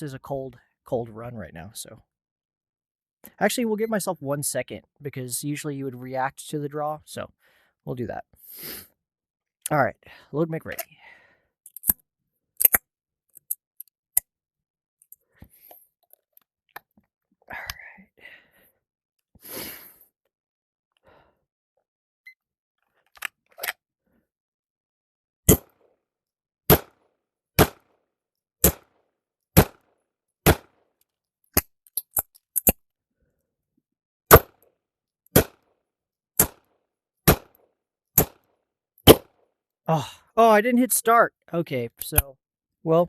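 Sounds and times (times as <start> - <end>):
pistol shots: 27.6 - 27.9, 28.6 - 28.9, 29.6 - 29.9, 30.5 - 30.8, 35.4 - 35.6, 36.4 - 36.6, 37.3 - 37.5.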